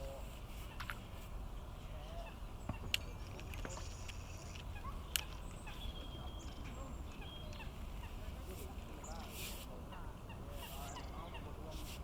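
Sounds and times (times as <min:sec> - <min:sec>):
faint bird calls: 0:01.8 - 0:12.0
sharp clicks: 0:02.7 - 0:05.6.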